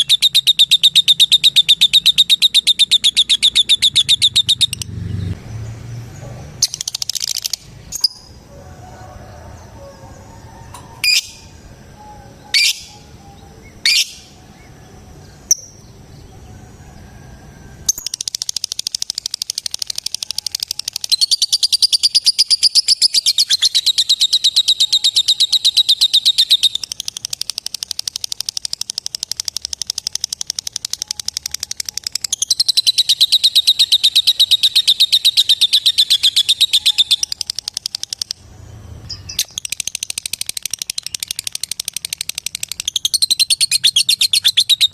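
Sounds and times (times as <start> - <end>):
lovebird rapid chattering trill: 0.0 - 4.9, 6.6 - 8.4, 12.4 - 14.4, 17.9 - 38.4, 39.1 - 44.9.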